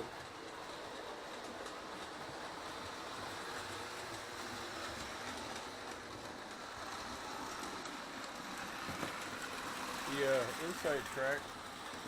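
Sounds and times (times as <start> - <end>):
toy train motors whirring: 0.0 - 12.0
faint clicking of track: 0.2 - 2.9.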